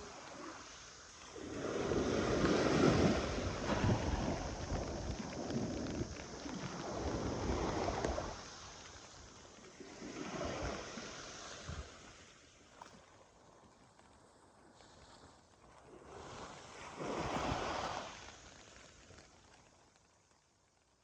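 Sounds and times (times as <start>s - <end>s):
sea waves washing in: 0.0s - 13.6s, 14.7s - 19.7s.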